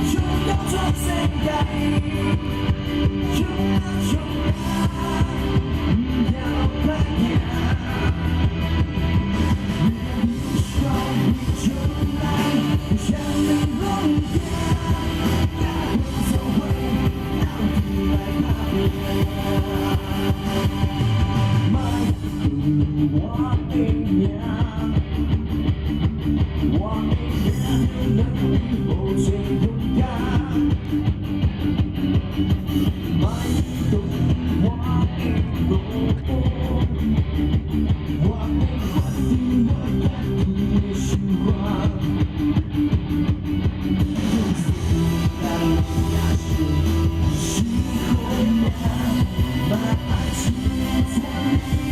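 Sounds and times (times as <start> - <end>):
drums beat: 0.0 - 24.8, 37.0 - 51.9
rock band playing: 0.0 - 51.9.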